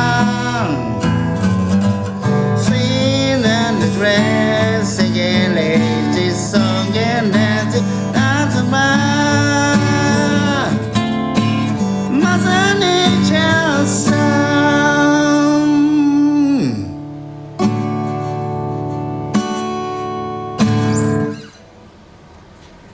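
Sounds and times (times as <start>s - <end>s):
man singing: 0.0s - 17.1s
acoustic guitar strumming: 0.0s - 22.6s.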